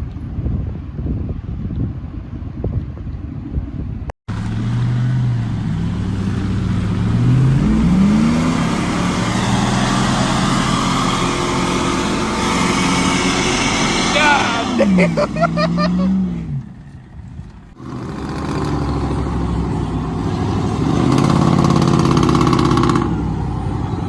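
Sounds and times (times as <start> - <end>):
truck loud exhaust revving: 4.3 - 16.8, 17.7 - 24.0
wind buffeting: 5.2 - 15.6.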